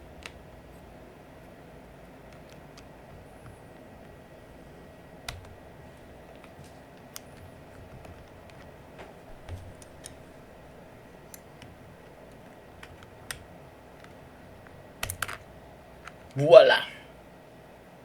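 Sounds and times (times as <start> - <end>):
faint steady hum: 0.0 - 18.0
plastic keycap clicks: 5.3 - 8.8, 9.4 - 16.4.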